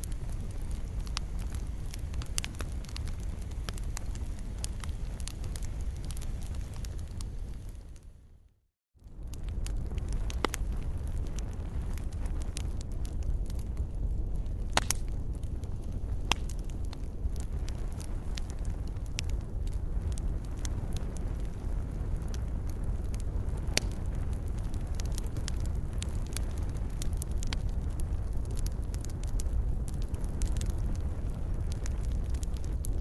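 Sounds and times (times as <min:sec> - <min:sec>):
fire crackling and popping: 0:00.0 - 0:08.4, 0:09.0 - 0:33.0
low rumble of flames: 0:00.0 - 0:33.0.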